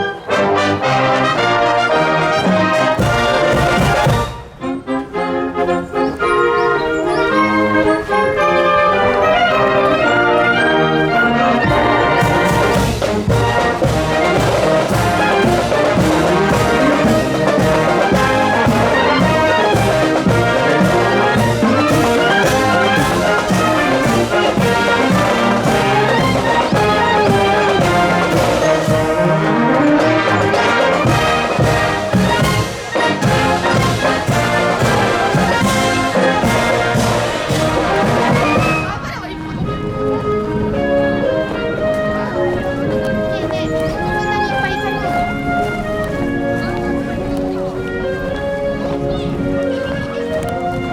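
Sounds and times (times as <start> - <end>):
marching wind band playing: 0.0 - 50.9
trumpets and trombones: 0.0 - 50.9
steady percussion beat: 2.4 - 4.6, 11.6 - 39.0.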